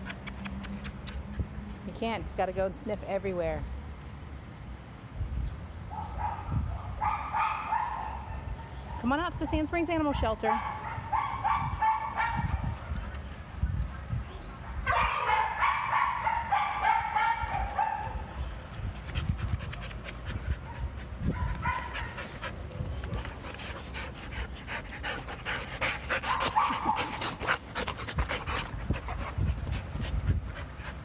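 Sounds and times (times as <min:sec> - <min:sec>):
dogs panting: 0:18.8 - 0:31.0.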